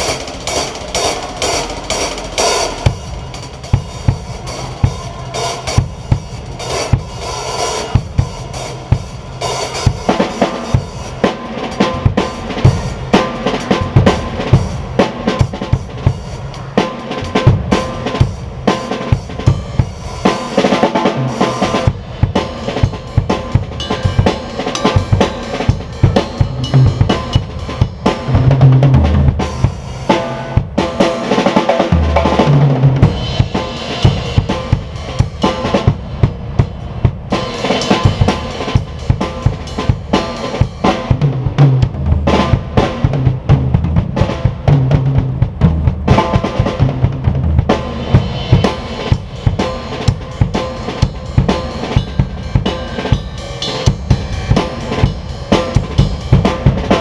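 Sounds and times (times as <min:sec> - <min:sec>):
snare drum: 0:09.6 - 0:57.0
bass drum: 0:11.8 - 0:16.3, 0:17.2 - 0:20.0, 0:21.7 - 0:31.0, 0:31.9 - 0:52.8
cymbal strikes: 0:21.2 - 0:28.6, 0:32.0 - 0:41.2, 0:47.8 - 0:57.0
low-pitched drum hits: 0:21.9 - 0:29.8, 0:32.0 - 0:40.1.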